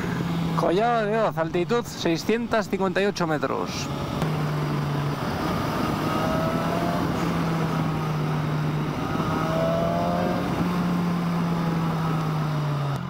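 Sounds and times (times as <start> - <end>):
motorcycle engine running: 3.9 - 13.0.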